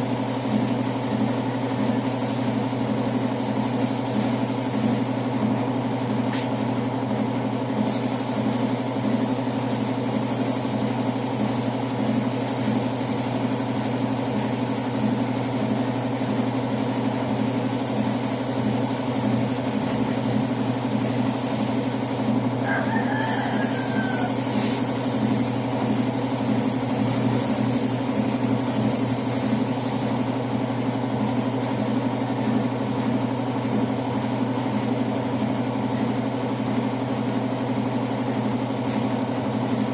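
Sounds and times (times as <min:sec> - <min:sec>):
air compressor running: 0:00.0 - 0:39.9
spray gun hissing: 0:01.5 - 0:05.2, 0:07.8 - 0:22.3, 0:23.2 - 0:30.3.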